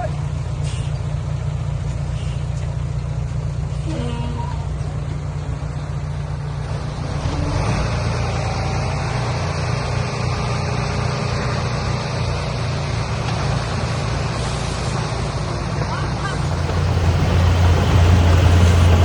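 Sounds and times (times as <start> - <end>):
heavy diesel engine running: 16.1 - 19.0
rushing noise: 16.3 - 19.0.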